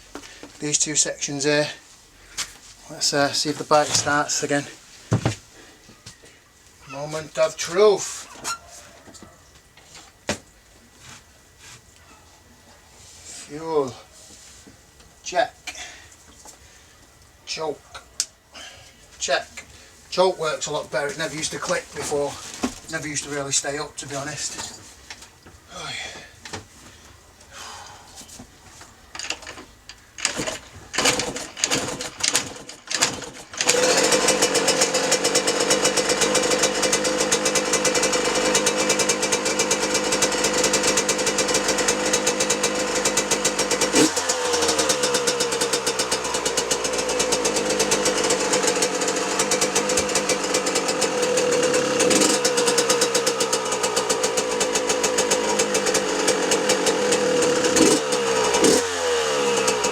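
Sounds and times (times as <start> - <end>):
two-stroke engine starting and running: 2.9 - 4.7, 20.2 - 24.5, 29.1 - 59.9
loose screws rattling: 29.1 - 59.9.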